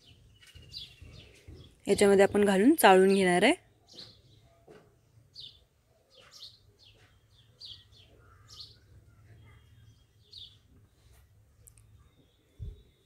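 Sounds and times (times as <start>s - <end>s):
faint bird chirps: 5.4s - 13.0s.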